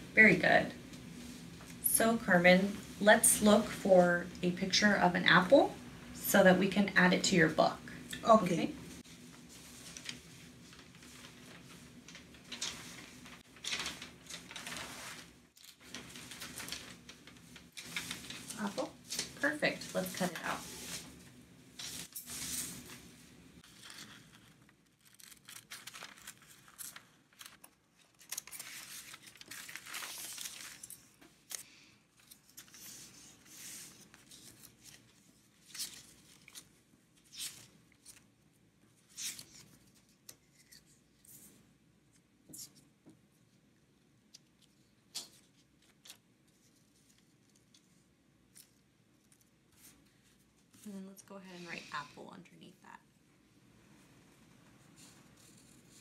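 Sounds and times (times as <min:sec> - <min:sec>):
paper rustling: 0:09.0 - 0:38.3, 0:39.0 - 0:41.6, 0:44.6 - 0:51.0.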